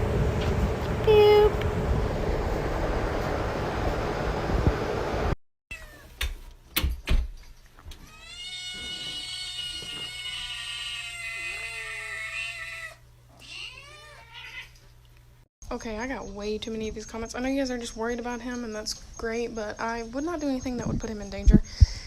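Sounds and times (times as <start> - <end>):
cat meowing: 5.7 - 6.1, 8.0 - 14.8.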